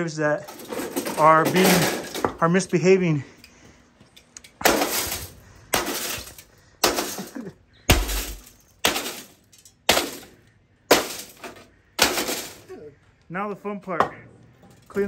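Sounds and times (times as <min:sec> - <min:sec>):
glass breaking: 0:04.6 - 0:12.7.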